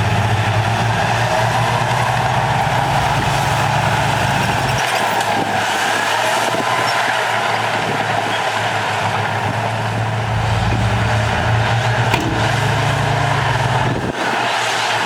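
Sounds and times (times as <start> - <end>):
heavy diesel engine running: 7.5 - 14.3
mechanical clatter and hiss: 10.4 - 14.1.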